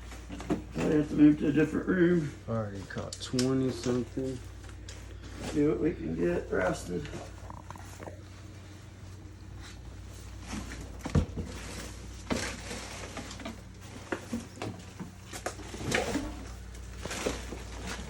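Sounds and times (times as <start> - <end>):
knocks and rustling clatter: 0.0 - 1.8, 6.7 - 18.0.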